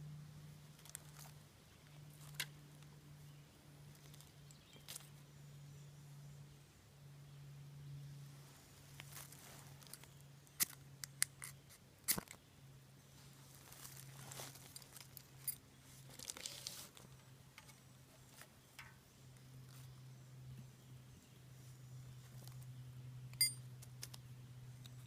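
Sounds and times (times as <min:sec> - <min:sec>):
rustling and crinkling: 0:00.7 - 0:02.9, 0:03.9 - 0:05.2, 0:08.4 - 0:10.8, 0:13.1 - 0:20.0.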